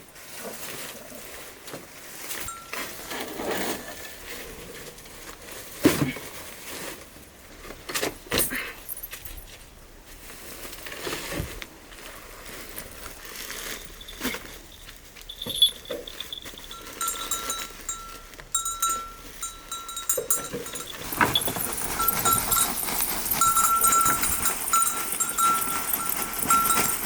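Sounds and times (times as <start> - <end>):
bells ringing: 2.5 - 3.0, 14.0 - 27.0.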